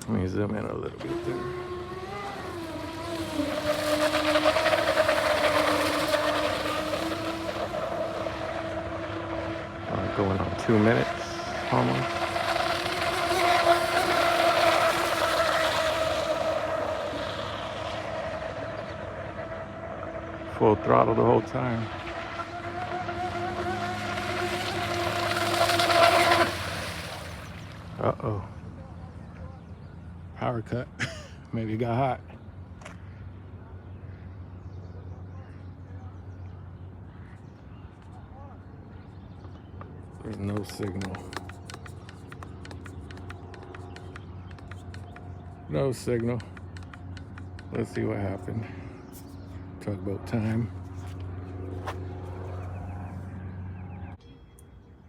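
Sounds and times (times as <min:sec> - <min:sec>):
electric motor whine: 0:00.0 - 0:28.0.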